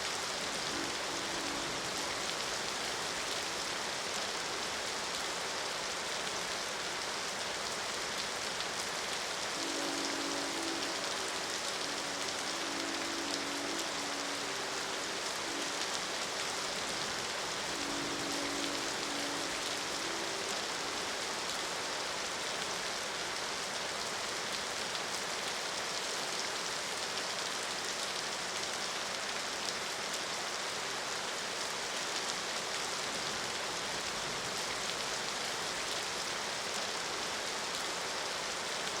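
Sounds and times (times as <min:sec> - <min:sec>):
steady rain falling: 0:00.0 - 0:39.0
distant train horn blasts: 0:00.4 - 0:03.0, 0:09.5 - 0:22.4.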